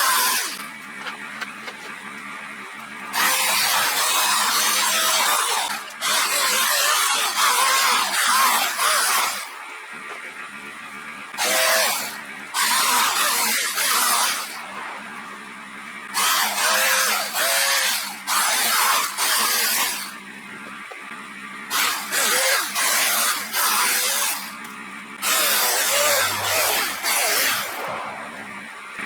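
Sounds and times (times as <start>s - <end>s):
electric chainsaw cutting wood: 0.0s - 9.7s, 10.6s - 21.0s, 21.6s - 29.0s
steady low hum: 14.4s - 16.2s, 24.6s - 29.0s.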